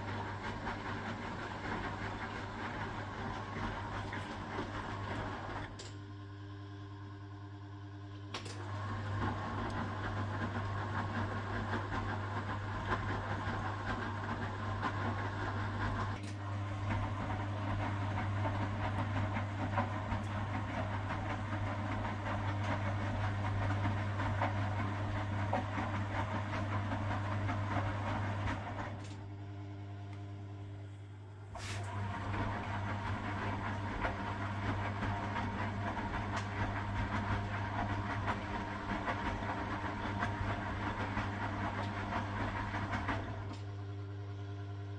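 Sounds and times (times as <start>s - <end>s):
washing machine drum churning: 0.0s - 5.8s, 8.7s - 29.0s, 31.6s - 43.6s
washing machine motor humming: 0.0s - 7.0s, 7.7s - 44.9s.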